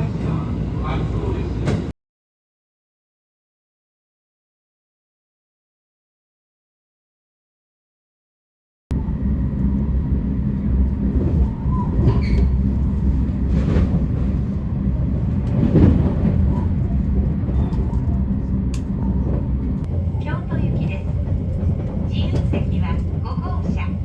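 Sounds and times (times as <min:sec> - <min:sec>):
vehicle rumble: 0:08.9 - 0:24.0.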